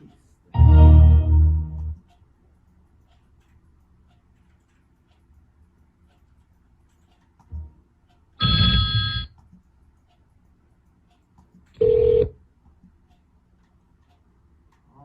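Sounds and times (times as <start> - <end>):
bright computer chime: 0.6 - 2.0, 8.4 - 9.3
low single-tone system sound: 0.6 - 2.0, 7.5 - 7.8, 8.4 - 9.3.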